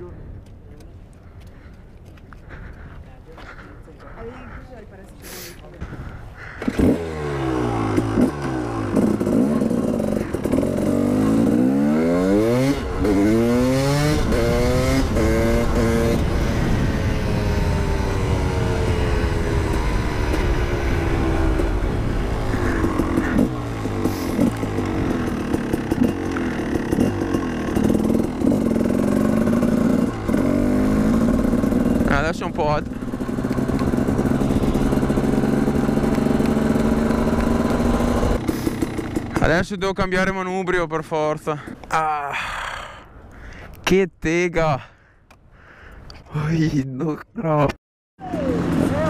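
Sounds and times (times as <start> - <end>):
motorcycle engine accelerating: 5.8 - 39.6, 48.2 - 49.0.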